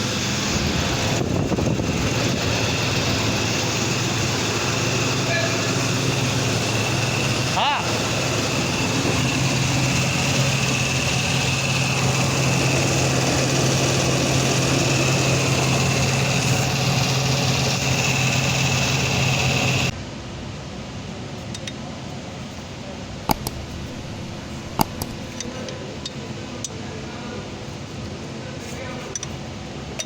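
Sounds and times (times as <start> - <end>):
car engine idling: 0.0 - 19.9, 23.3 - 25.6
thin high whine: 0.0 - 19.9.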